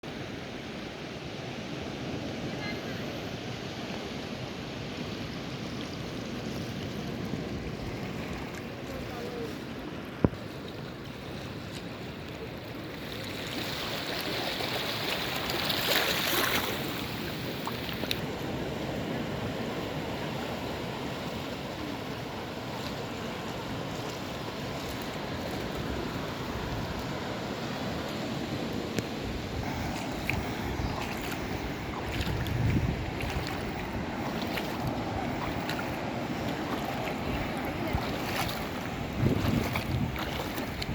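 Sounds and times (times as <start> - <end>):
sea waves washing onto beach: 0.1 - 40.9
wind on microphone: 23.9 - 40.9.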